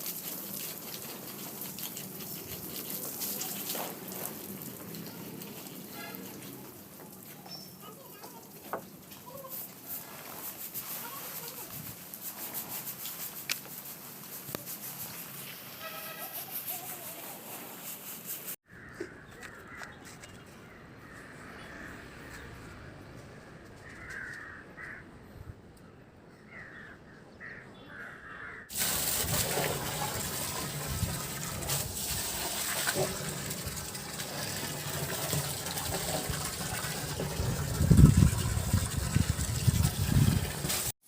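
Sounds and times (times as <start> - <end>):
crows cawing: 18.7 - 20.0, 23.8 - 25.1, 26.5 - 28.7.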